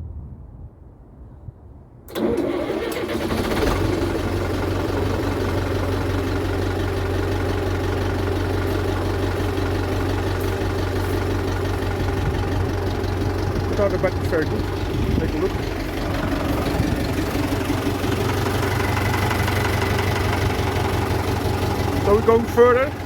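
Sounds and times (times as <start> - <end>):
diesel tractor engine starting and idling: 2.1 - 23.0.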